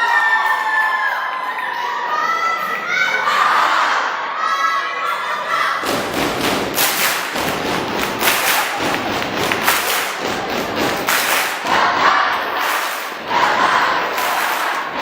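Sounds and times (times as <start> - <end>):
loud irregular thumps: 5.8 - 12.4.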